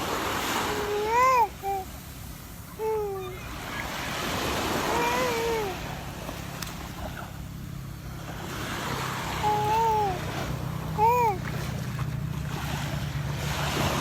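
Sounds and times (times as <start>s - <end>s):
sea surf washing on shore: 0.0s - 14.0s
young child calling out: 0.6s - 1.8s, 2.8s - 3.4s, 4.9s - 5.8s, 9.4s - 10.2s, 11.0s - 11.5s.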